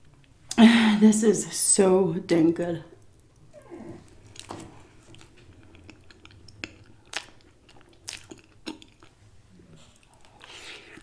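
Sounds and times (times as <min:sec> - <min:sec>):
person chewing: 0:03.0 - 0:11.0
wet mouth smacks: 0:04.4 - 0:09.1.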